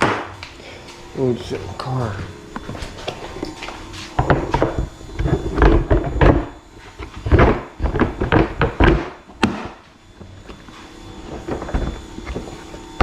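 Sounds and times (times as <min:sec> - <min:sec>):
hard parts thunking and knocking: 0:04.2 - 0:09.8.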